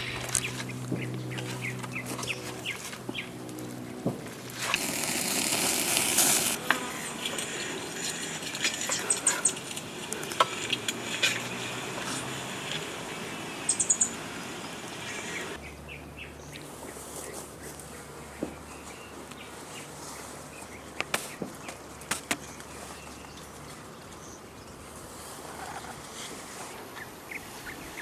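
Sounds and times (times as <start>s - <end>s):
steady forest hiss: 0.0s - 15.7s
bird chirps: 13.1s - 16.6s.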